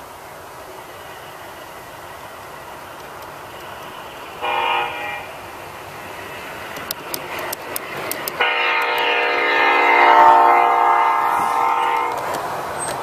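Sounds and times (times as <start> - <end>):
train running noise: 0.0 - 13.0
model train horn blasts: 4.4 - 5.4, 8.4 - 12.3
sharp clicks: 6.7 - 9.1.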